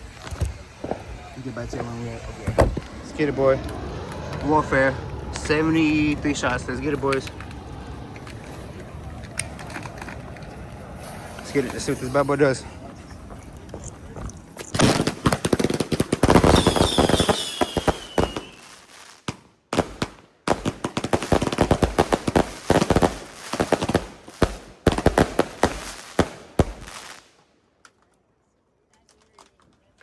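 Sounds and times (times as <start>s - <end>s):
firework cake firing shots: 0.0s - 2.9s, 14.6s - 27.3s
falling firework whistle: 16.3s - 18.9s.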